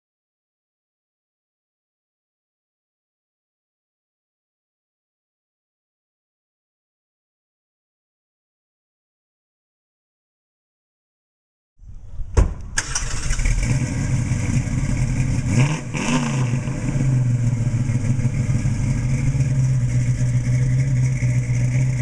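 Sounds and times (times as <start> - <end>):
car engine starting and idling: 12.6 - 22.0
engine revving: 12.8 - 22.0.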